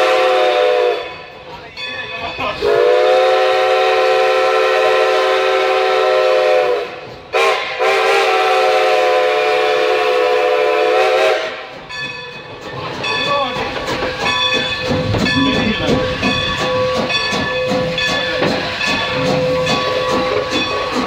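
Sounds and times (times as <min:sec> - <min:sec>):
steam locomotive whistle blasts: 0:00.0 - 0:01.2, 0:02.6 - 0:11.7.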